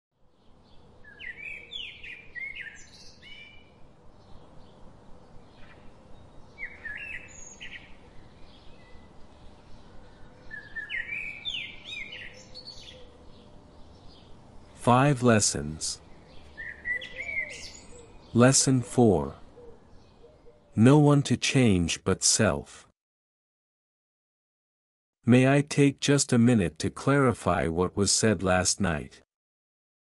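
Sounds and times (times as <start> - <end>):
songbird singing: 0.2 - 22.6.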